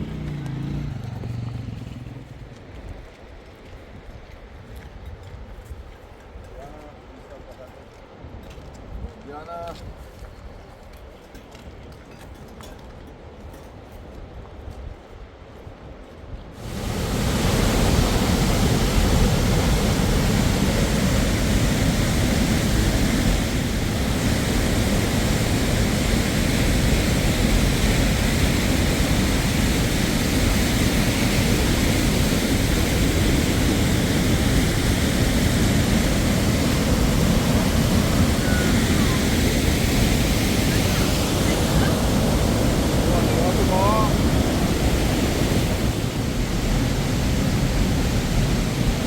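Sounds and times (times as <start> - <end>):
waterfall rushing: 16.6 - 49.0.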